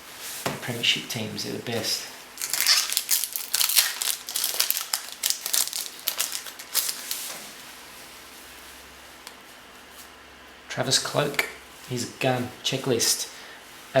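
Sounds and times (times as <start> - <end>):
wrapper crinkling: 2.4 - 7.4.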